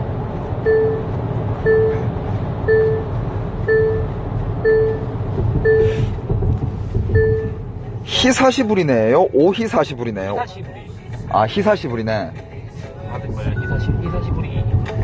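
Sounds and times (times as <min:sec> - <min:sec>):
car cabin rumble: 0:00.0 - 0:11.6, 0:12.5 - 0:15.0
car warning chime beeping: 0:00.6 - 0:02.1, 0:02.7 - 0:06.0, 0:07.1 - 0:07.6.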